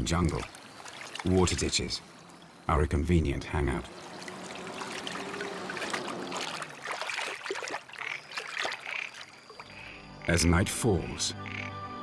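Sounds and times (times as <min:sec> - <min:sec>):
small water splashes: 0:00.0 - 0:02.7, 0:03.6 - 0:09.7
water trickling: 0:00.0 - 0:10.0.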